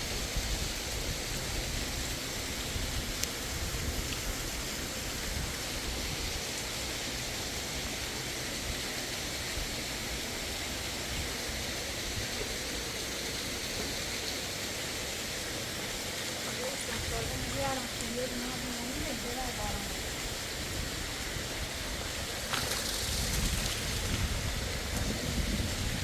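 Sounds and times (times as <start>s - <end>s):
fast-flowing river rushing: 7.6s - 26.0s.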